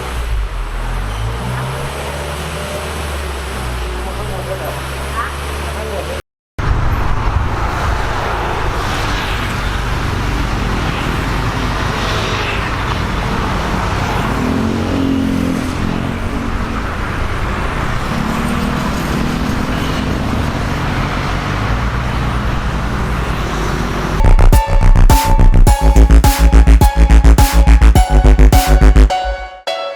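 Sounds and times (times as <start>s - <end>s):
road noise: 0.0s - 29.4s
car engine running: 24.2s - 29.2s
exhaust note: 24.2s - 29.7s.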